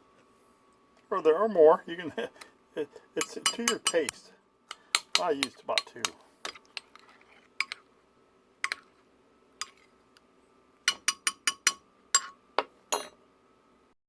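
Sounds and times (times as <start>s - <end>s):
utensil tapping on cookware: 3.2s - 6.9s, 10.9s - 13.1s.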